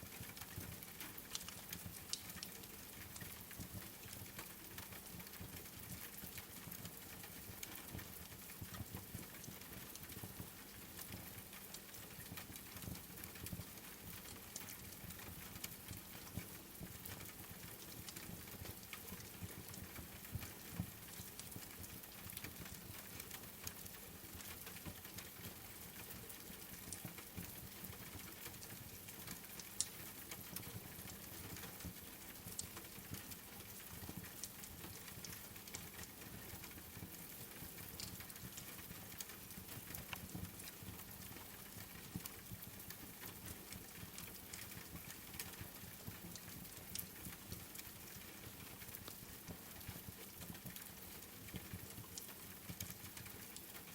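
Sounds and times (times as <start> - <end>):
rain pattering: 0.0 - 53.9
wood fire crackling: 49.8 - 53.9.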